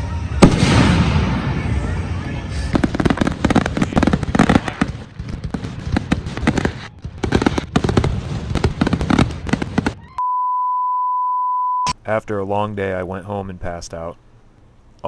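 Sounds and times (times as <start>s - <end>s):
fireworks bangs and crackles: 0.4s - 1.8s, 2.5s - 10.2s.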